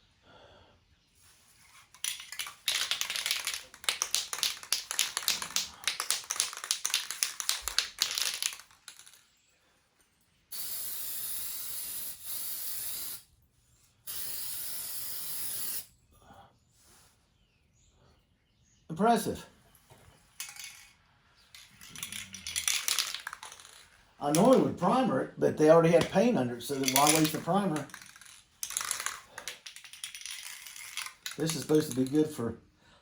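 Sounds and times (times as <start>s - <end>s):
spray can ball rattling: 1.6s - 9.2s, 10.5s - 13.2s, 20.4s - 20.9s, 21.5s - 25.0s, 25.8s - 32.4s
spray paint hissing: 10.5s - 13.3s, 14.1s - 15.9s.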